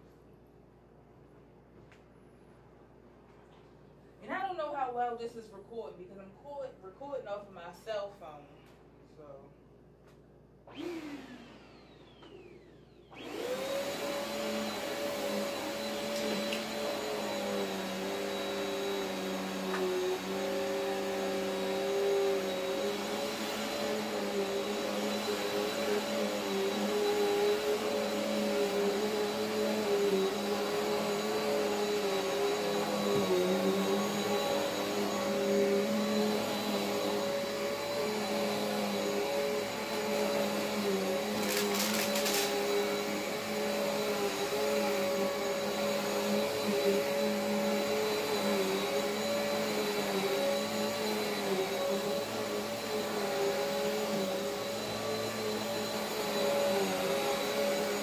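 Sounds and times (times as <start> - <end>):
vacuum cleaner running: 10.6 - 58.0.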